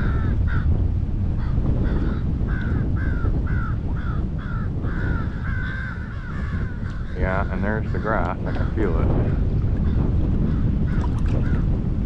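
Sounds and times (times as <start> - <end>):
wind rumble on microphone: 0.0 - 12.0
bird calling: 1.9 - 10.0.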